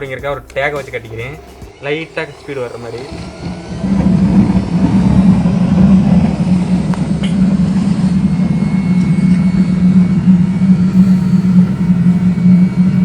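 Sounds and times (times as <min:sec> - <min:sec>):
electric air blower humming: 0:00.0 - 0:06.5, 0:10.9 - 0:13.0.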